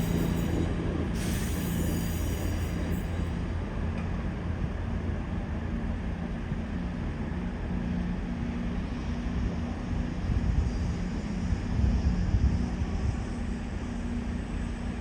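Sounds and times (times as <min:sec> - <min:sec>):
train engine droning: 0:00.0 - 0:15.0.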